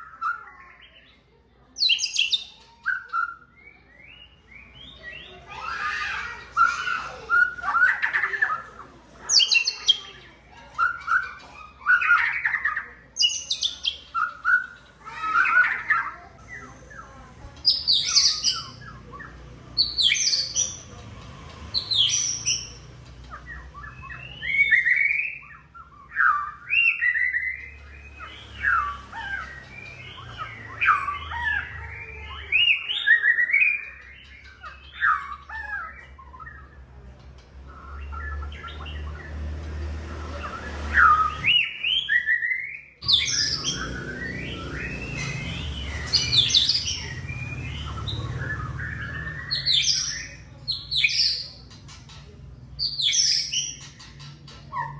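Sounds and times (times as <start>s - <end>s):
bird singing whistled phrases: 23.5s - 36.7s, 41.0s - 51.6s.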